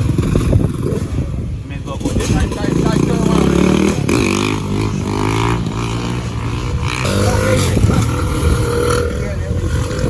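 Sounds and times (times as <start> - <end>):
faint voices: 6.6 - 10.0.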